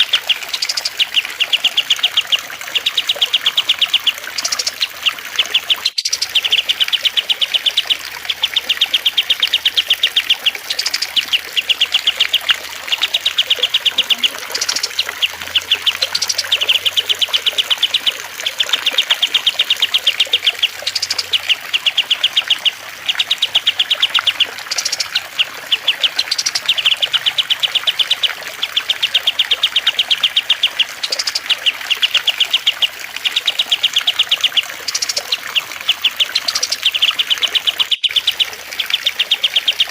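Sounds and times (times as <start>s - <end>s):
cage birds chattering: 0.0s - 39.9s
trickling water hiss: 0.0s - 39.9s.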